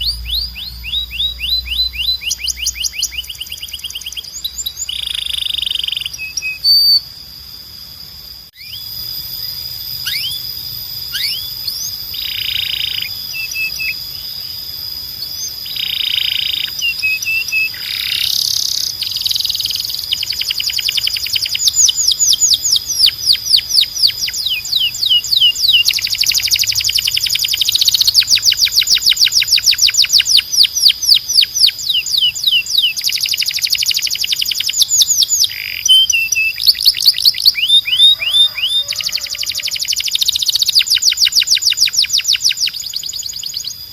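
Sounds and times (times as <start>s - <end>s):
canary singing trills: 0.0s - 7.2s, 8.6s - 43.9s.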